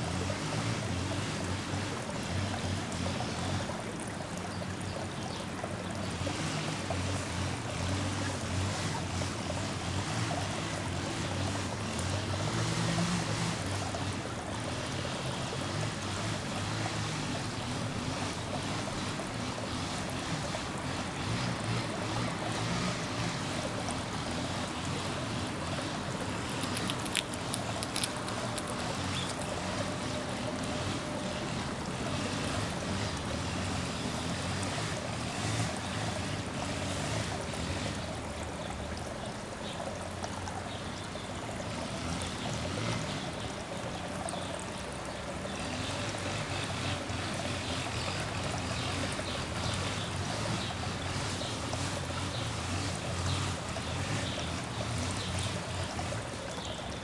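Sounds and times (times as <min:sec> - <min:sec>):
outdoor background rush: 0:00.0 - 0:57.0.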